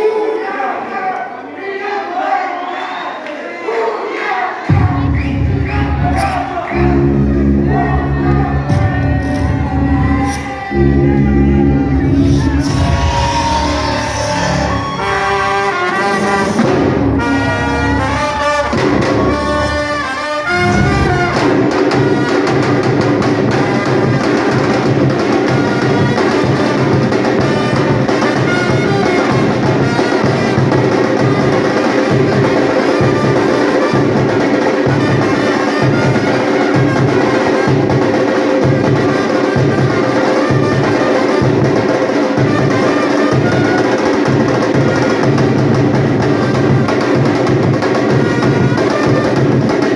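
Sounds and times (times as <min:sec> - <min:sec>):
brass passage: 0:04.2 - 0:24.6
samba percussion beat: 0:04.7 - 0:49.9.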